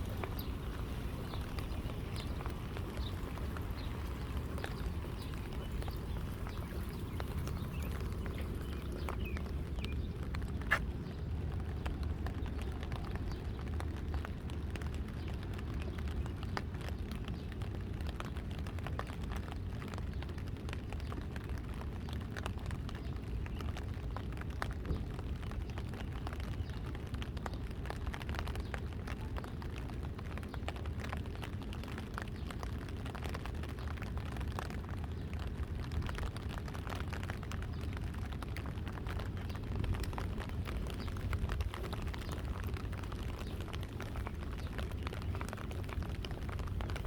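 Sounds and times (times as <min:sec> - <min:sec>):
rain drops ticking: 0:00.0 - 0:47.0
wind rumble on microphone: 0:00.0 - 0:47.0.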